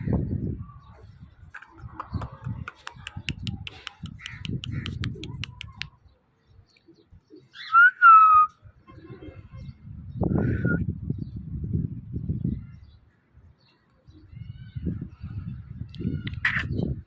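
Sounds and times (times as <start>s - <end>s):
parrot chatter: 2.0s - 5.9s
high clicks: 2.1s - 6.0s.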